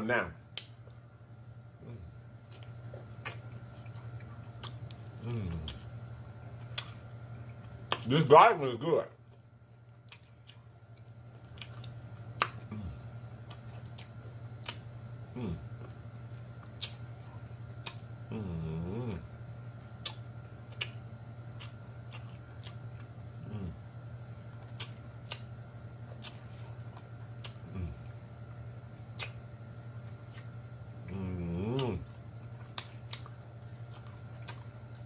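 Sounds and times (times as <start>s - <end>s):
chewing and lip-smacking: 1.8s - 8.3s, 9.2s - 35.0s
hummed moans of enjoyment: 5.2s - 5.8s, 12.7s - 13.1s, 15.3s - 15.7s, 18.3s - 19.3s, 23.4s - 23.8s, 27.6s - 28.1s, 31.0s - 32.1s.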